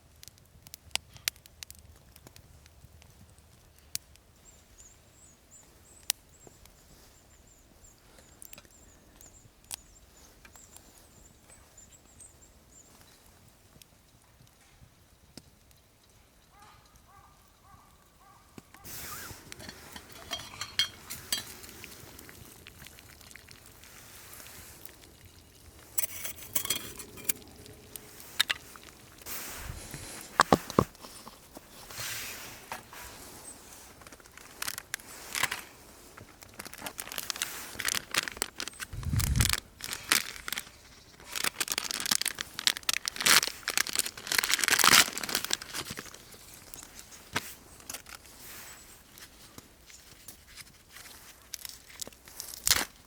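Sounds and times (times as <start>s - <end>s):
material crinkling and rustling: 18.8s - 48.4s.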